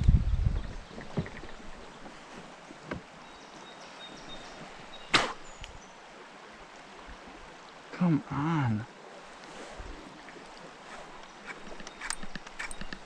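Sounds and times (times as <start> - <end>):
water: 0.0 - 13.0
wind: 0.0 - 13.0
light knocks on boat: 2.8 - 3.1.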